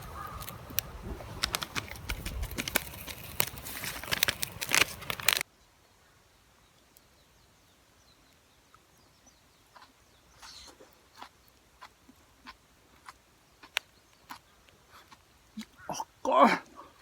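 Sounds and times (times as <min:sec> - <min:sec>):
campfire crackling and popping: 0:00.0 - 0:05.4.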